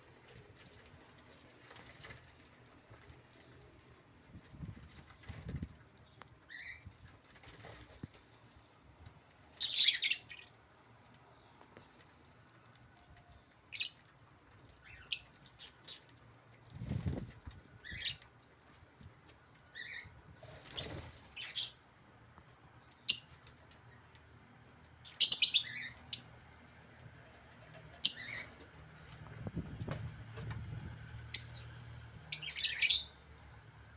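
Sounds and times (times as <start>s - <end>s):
birds chirping high: 5.2s - 18.4s, 19.4s - 22.0s, 22.8s - 24.2s, 25.0s - 26.3s, 27.6s - 29.7s, 31.2s - 33.2s
wing flutters: 16.7s - 18.2s.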